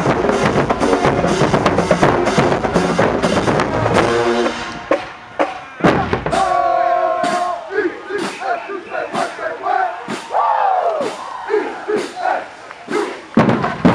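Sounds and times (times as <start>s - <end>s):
drum hits: 0.0s - 7.5s, 13.4s - 13.9s
marching band brass and drums: 0.0s - 13.9s.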